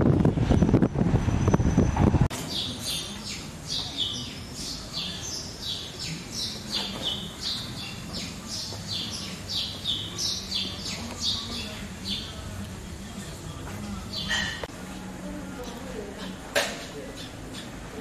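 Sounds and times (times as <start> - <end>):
small birds chirping: 2.3 - 13.2, 13.8 - 14.7, 15.6 - 18.0.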